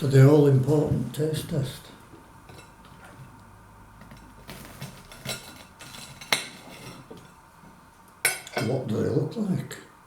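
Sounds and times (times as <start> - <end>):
cutlery clinking on a plate: 4.0 - 7.4, 8.2 - 8.8.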